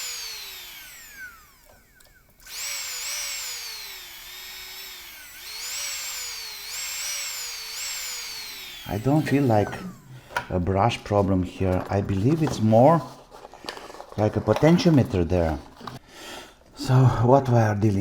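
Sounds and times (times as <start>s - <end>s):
nail grinder motor whining: 0.0s - 10.6s.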